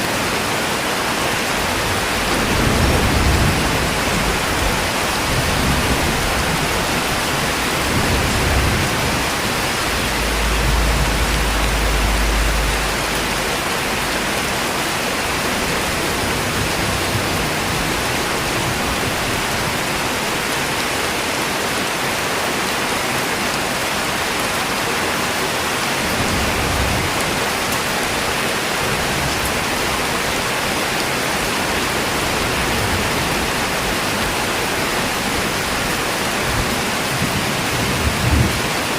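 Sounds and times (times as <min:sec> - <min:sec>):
heavy rain: 0:00.0 - 0:38.9
deep low rumble: 0:07.3 - 0:15.6.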